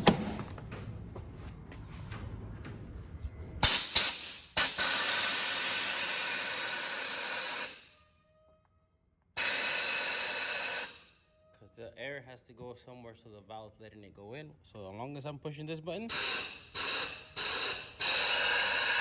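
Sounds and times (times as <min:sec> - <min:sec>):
compressed air hissing: 0:03.6 - 0:07.8, 0:09.4 - 0:11.1, 0:16.1 - 0:19.0
short air blasts: 0:03.6 - 0:07.9, 0:09.4 - 0:11.1, 0:16.1 - 0:19.0.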